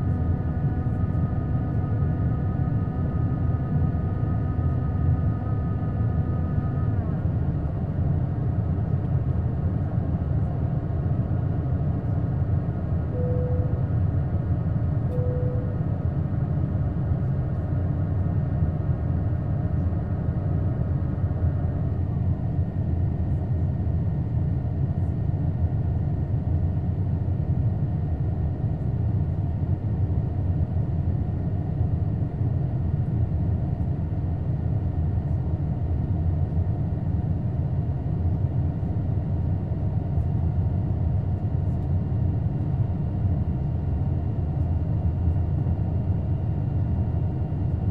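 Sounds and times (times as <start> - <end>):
airplane cabin rumble: 0.0 - 47.9
high steady engine tones: 0.0 - 47.9
brief single tone: 13.1 - 14.0, 15.1 - 16.0.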